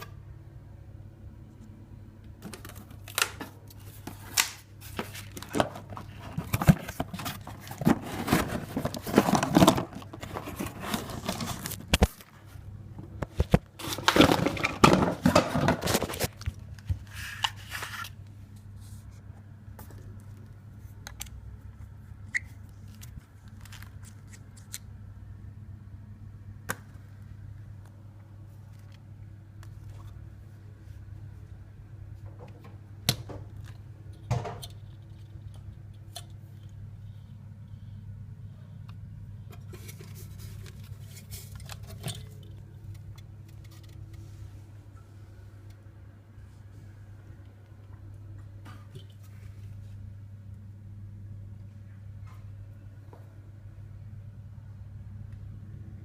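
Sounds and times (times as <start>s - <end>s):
steady low hum: 0.0s - 56.0s
rustling and scraping: 2.4s - 12.6s, 13.3s - 20.2s, 39.5s - 44.7s.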